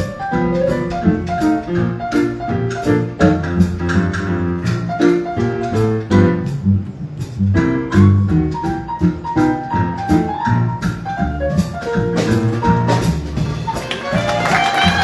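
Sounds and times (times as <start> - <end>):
bass notes: 0.0 - 15.0
drum kit: 0.0 - 15.0
piano chords: 0.0 - 15.0
horns playing held lines: 13.7 - 15.0.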